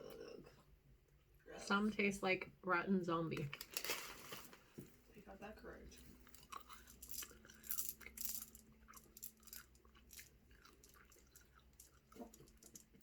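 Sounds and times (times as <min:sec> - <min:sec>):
crisp crackles and clicks: 0:03.4 - 0:04.8, 0:06.1 - 0:13.0
person chewing candy: 0:06.1 - 0:13.0.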